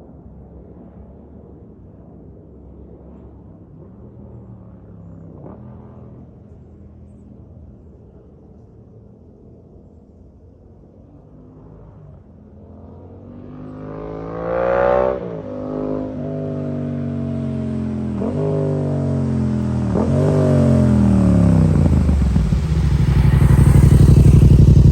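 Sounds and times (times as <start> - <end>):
motorcycle engine revving: 17.3 - 24.9.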